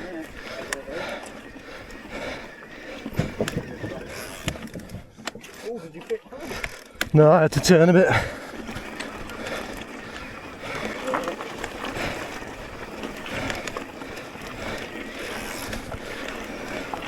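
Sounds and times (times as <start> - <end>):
bike rattles and clicks: 0.0 - 17.0
bike tyres on dirt trail: 0.0 - 17.0.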